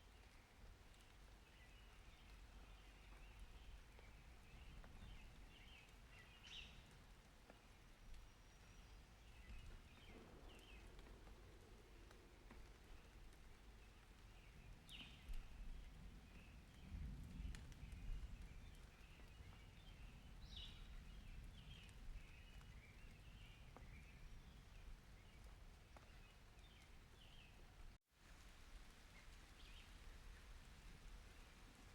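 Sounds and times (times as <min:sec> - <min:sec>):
soft rain hiss: 0:00.0 - 0:31.9
distant thunder rumble: 0:09.4 - 0:24.1.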